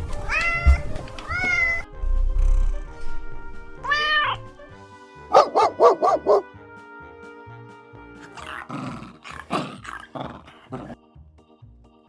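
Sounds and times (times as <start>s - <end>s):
dog barking: 5.3s - 6.5s.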